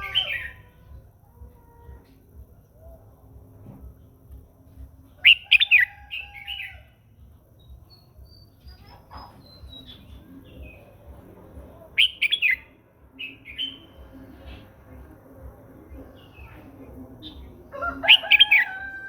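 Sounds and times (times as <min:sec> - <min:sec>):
bird warbling: 0:05.2 - 0:06.7, 0:12.0 - 0:12.6
high whistled bird notes: 0:05.2 - 0:06.9, 0:12.0 - 0:13.9.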